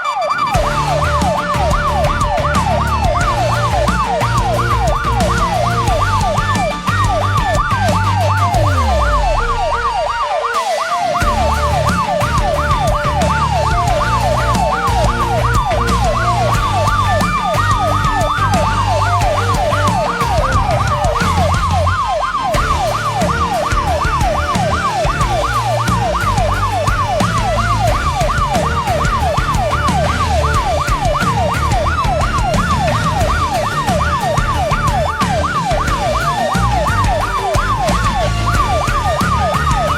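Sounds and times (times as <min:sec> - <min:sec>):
siren wailing slowly: 0:00.0 - 0:39.9
siren yelping fast: 0:00.0 - 0:39.9.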